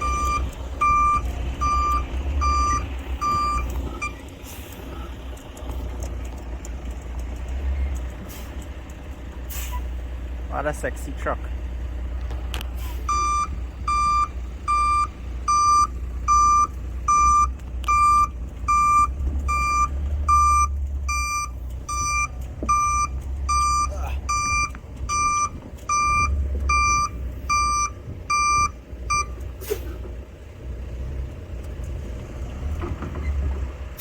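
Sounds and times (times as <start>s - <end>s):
truck backup alarm beeping: 0.0s - 4.8s, 12.8s - 30.0s
diesel engine rumble: 0.0s - 34.0s.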